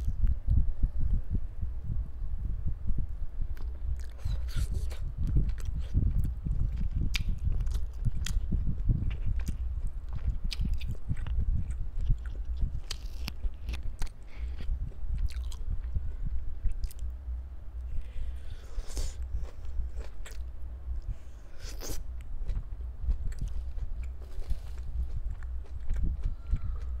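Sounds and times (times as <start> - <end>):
person chewing meat: 3.6 - 16.0, 16.6 - 17.1, 18.3 - 27.0.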